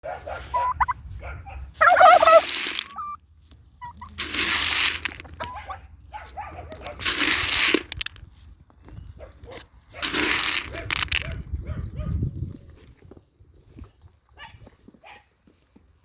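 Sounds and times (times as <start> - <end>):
fowl harsh raspy calls: 0.4 - 1.0, 1.8 - 3.2
fowl warbling call: 0.4 - 1.0, 1.8 - 3.2, 3.8 - 4.1.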